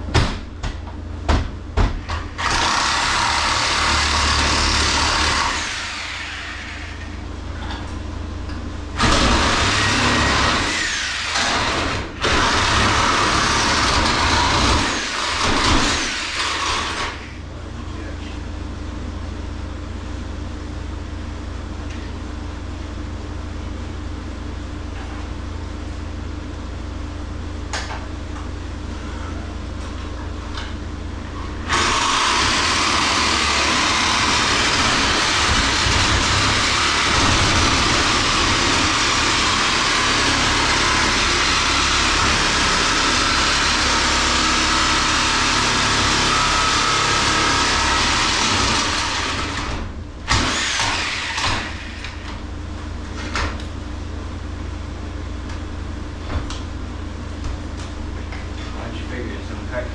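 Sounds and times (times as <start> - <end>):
steady low hum: 16.7 - 39.6, 51.9 - 59.9.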